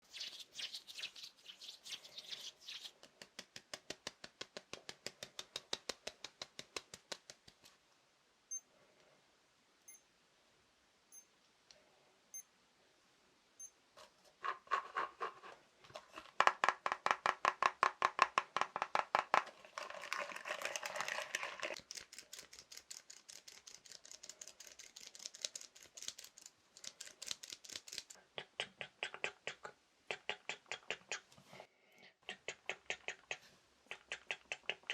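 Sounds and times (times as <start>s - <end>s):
fast tapping on small objects: 3.0s - 7.7s, 15.9s - 28.2s.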